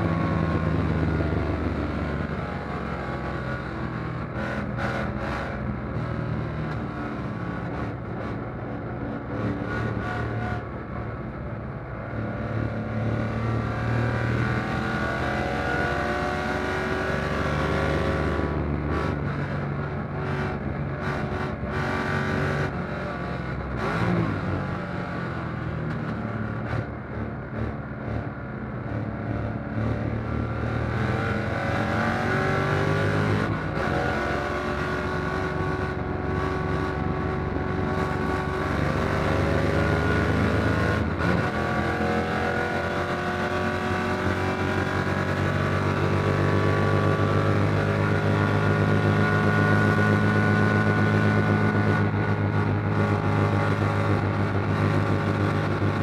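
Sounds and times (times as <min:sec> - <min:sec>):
car engine revving: 0:29.4 - 0:56.0.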